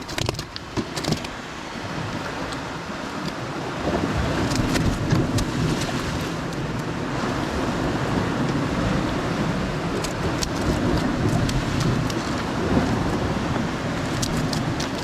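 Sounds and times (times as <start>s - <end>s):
surf washing on rocks: 0.0s - 15.0s
wind on microphone: 0.0s - 15.0s.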